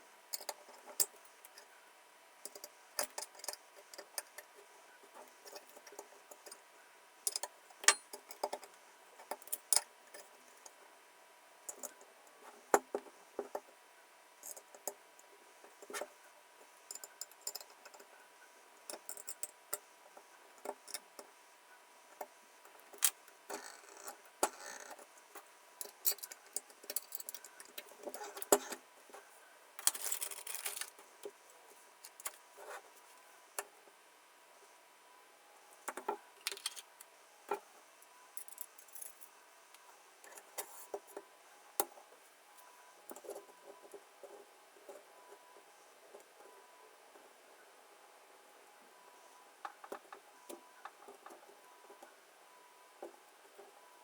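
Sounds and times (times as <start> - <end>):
small parts clicking and rattling: 0.3 - 1.7, 2.4 - 4.6, 16.9 - 18.1, 18.9 - 19.8, 25.8 - 28.8, 29.8 - 31.0, 35.9 - 37.1.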